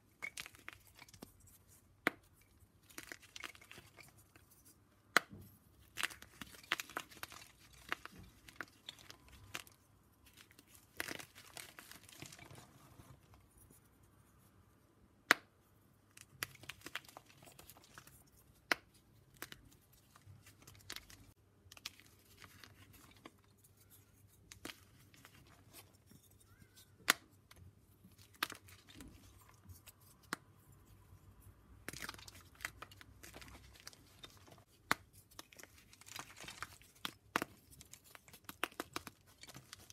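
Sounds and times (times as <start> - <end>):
chalk crumbling and scraping: 0.0 - 14.5, 16.1 - 39.9
chalk pieces snapping: 5.1 - 12.6, 26.5 - 30.5, 31.8 - 39.9.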